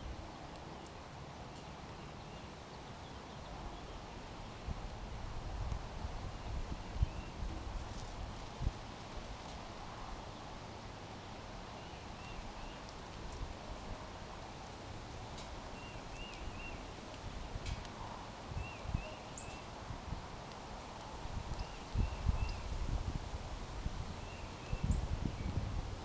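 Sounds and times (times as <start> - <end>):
outdoor background noise: 0.0 - 26.0
small birds chirping: 11.1 - 13.5, 15.4 - 19.8, 20.4 - 22.8, 24.0 - 26.0.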